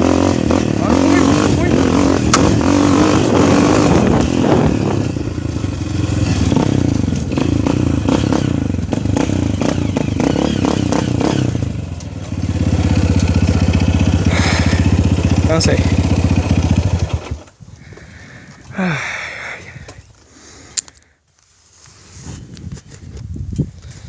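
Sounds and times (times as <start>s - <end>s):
motocross motorcycle engine: 0.0s - 17.6s.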